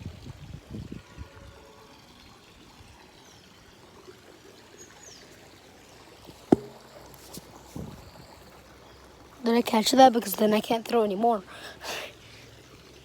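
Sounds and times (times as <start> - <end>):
sharp knock: 6.5 - 6.8.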